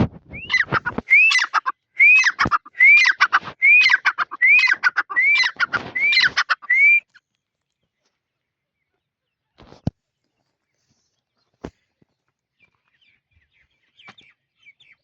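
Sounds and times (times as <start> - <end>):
bird whistling and clicking call: 0.3 - 7.2, 13.9 - 15.0.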